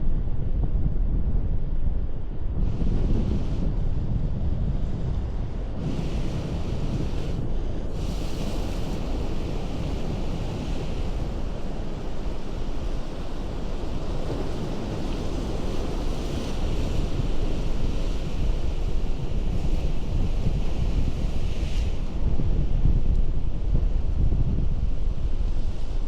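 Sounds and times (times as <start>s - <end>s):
wind on microphone: 0.0s - 26.0s
ocean surf on rocky shore: 5.8s - 22.4s.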